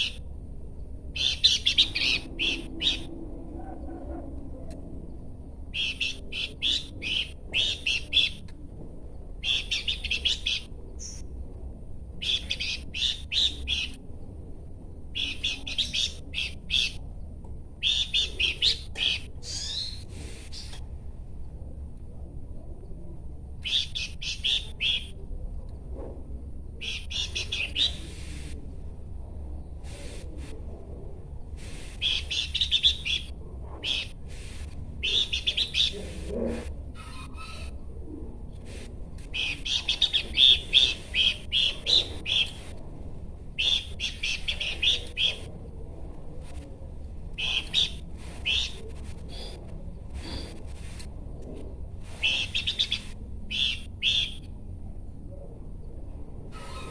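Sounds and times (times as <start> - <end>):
faint low hum: 0.0 - 56.9
bird chirping: 1.2 - 3.1, 5.7 - 8.4, 9.4 - 11.3, 52.2 - 54.5.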